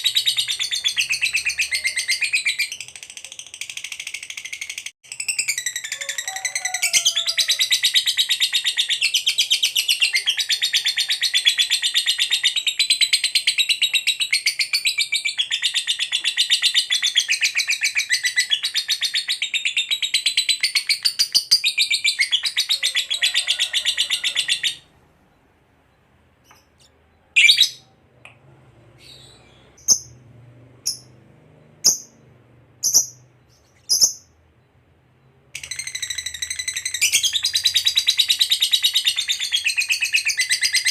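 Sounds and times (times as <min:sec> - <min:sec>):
bird sharp chirps: 0:30.9 - 0:40.9.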